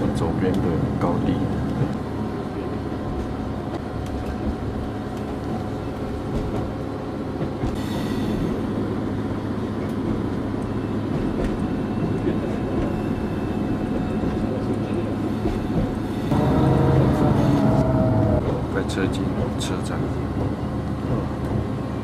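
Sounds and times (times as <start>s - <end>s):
train rumbling on rails: 0.0s - 22.0s.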